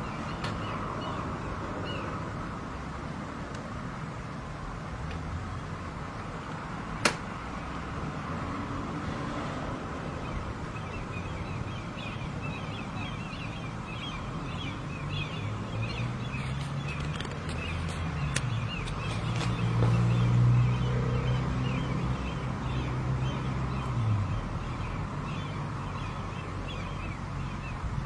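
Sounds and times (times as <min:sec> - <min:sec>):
birds chirping: 0:00.0 - 0:02.4, 0:10.0 - 0:28.0.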